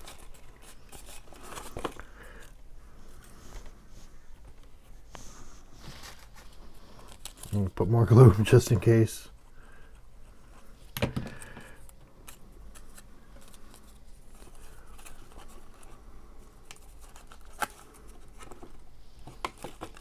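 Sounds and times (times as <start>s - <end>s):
cardstock rustling and scraping: 0.0s - 8.6s, 16.6s - 20.0s.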